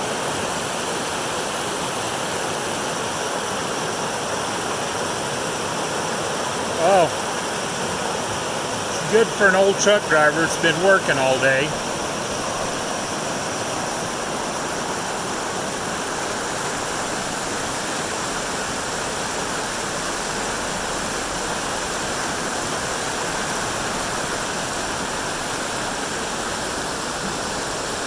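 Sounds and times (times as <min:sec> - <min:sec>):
creek rushing over rocks: 0:00.0 - 0:28.0.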